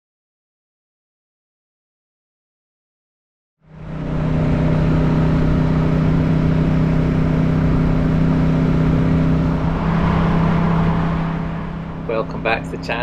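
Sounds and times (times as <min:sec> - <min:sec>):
motorcycle engine running: 0:03.7 - 0:12.9
wind and road noise: 0:03.7 - 0:13.0.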